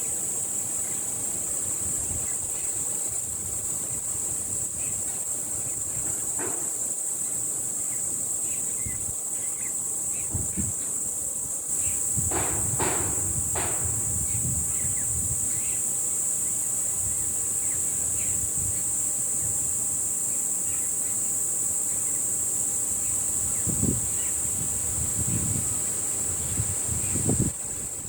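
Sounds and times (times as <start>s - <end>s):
insects droning: 0.0s - 28.0s
wind rumbling on microphone: 1.6s - 6.4s, 8.8s - 9.2s, 10.2s - 15.8s, 16.8s - 19.8s, 23.1s - 28.0s.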